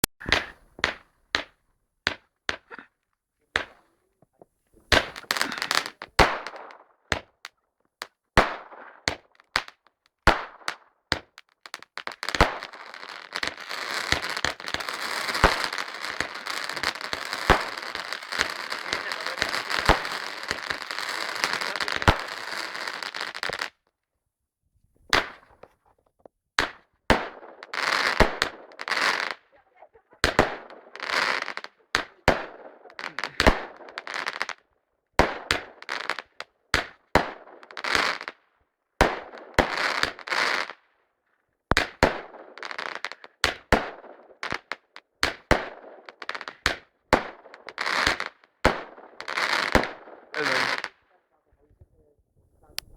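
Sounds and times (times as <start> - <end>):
firework bangs: 0.2 - 1.5, 4.8 - 7.4, 8.4 - 23.7, 25.1 - 25.6, 26.6 - 29.6, 30.2 - 34.5, 35.2 - 38.3, 43.4 - 51.0
firework crackling: 0.2 - 1.5, 4.8 - 7.4, 8.4 - 23.7, 26.6 - 29.6, 30.2 - 34.6, 41.7 - 51.0, 52.6 - 52.9.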